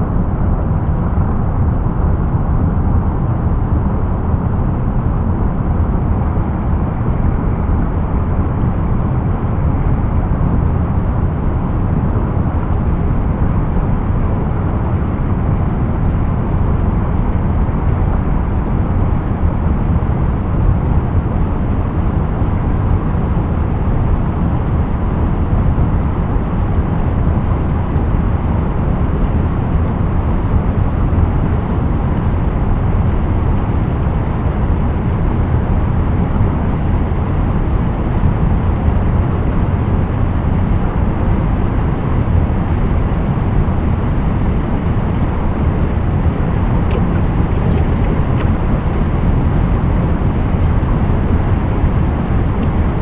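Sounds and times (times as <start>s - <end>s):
deep rushing water: 38.9s - 53.0s.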